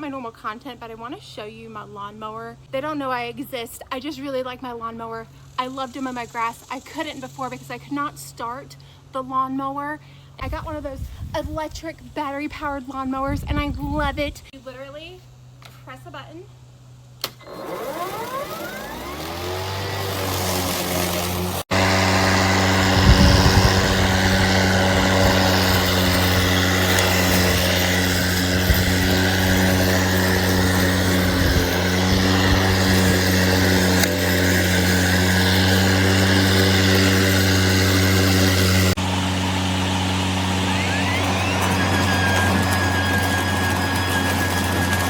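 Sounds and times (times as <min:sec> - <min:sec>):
electric lawn mower motor whine: 0:16.9 - 0:45.0.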